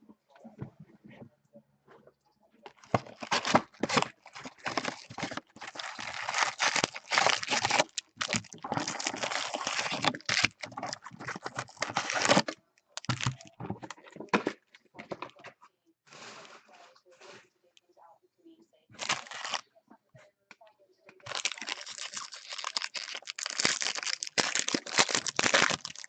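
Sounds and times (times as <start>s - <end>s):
plastic wrapping tearing and crinkling: 2.7s - 13.6s, 19.0s - 19.6s, 21.2s - 26.0s.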